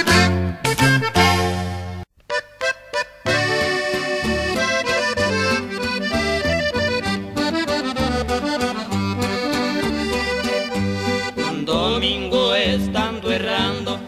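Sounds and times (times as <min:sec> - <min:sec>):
accordion playing lively melody: 0:00.0 - 0:14.0
low bass notes: 0:03.3 - 0:14.0.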